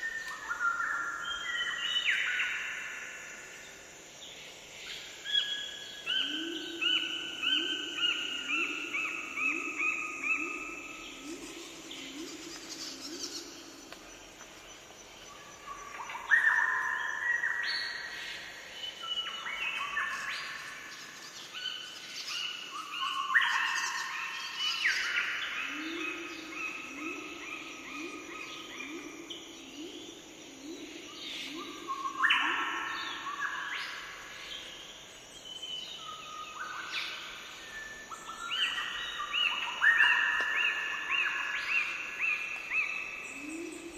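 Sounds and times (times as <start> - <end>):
birds singing: 14.7 - 43.9.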